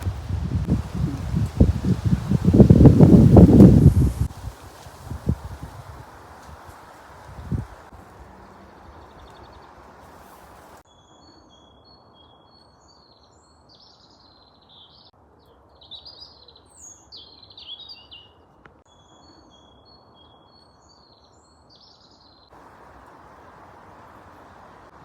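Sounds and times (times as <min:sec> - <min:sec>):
songbirds chirping: 0:00.0 - 0:25.0
faint background hiss: 0:22.5 - 0:25.0.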